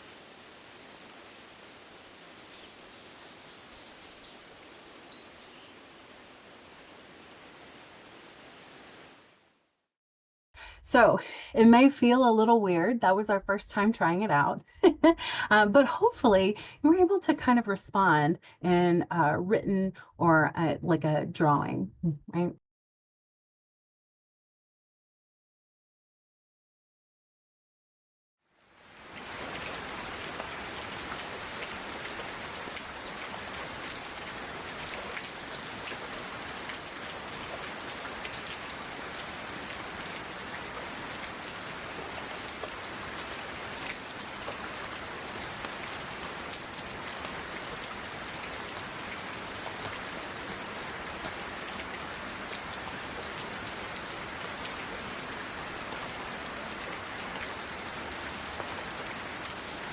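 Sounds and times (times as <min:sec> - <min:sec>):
steady rain falling: 0:00.0 - 0:09.6, 0:28.5 - 0:59.9.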